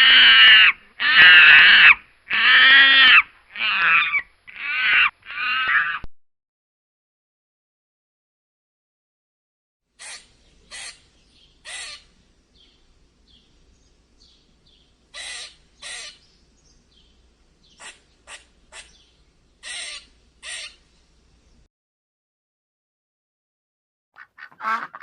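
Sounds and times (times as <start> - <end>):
bird harsh rasping calls: 0.0 - 6.0, 10.0 - 12.7, 14.7 - 16.8, 17.6 - 20.9, 24.2 - 25.0.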